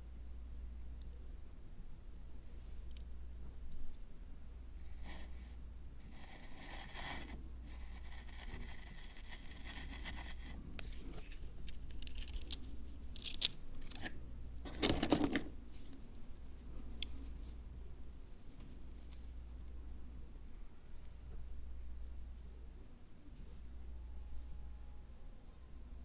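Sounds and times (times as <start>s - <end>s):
low steady hum: 0.0s - 26.0s
soft scraping hiss: 2.4s - 14.2s, 15.6s - 22.4s.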